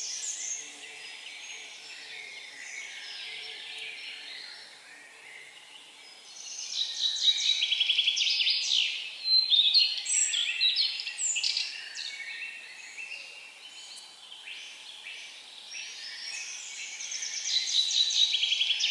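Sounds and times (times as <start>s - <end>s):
faint outdoor hiss: 0.0s - 18.9s.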